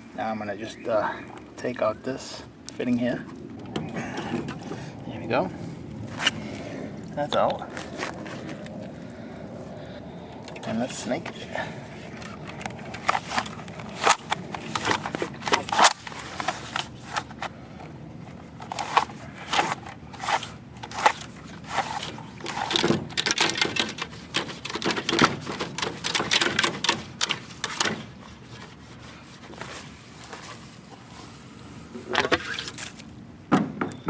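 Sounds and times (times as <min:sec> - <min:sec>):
drain snake cable clicking and scraping: 0:10.3 - 0:30.6.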